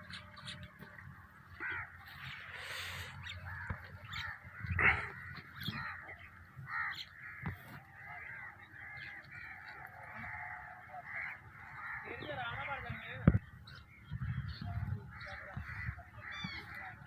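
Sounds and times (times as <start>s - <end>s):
crows cawing: 0.0s - 13.0s, 14.3s - 17.0s
flock of birds calling: 0.0s - 17.0s.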